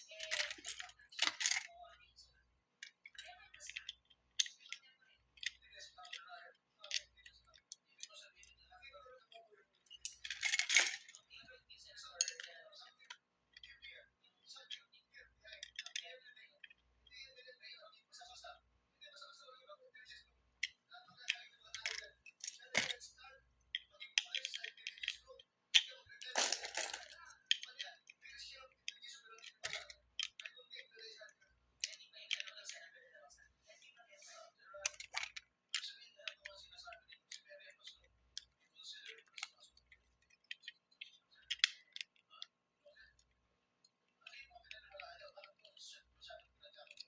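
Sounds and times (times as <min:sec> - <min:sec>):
plastic toy bricks clicking: 0:00.0 - 0:01.9, 0:02.8 - 0:08.6, 0:15.5 - 0:16.8, 0:23.7 - 0:32.8, 0:34.8 - 0:43.4, 0:44.2 - 0:47.0.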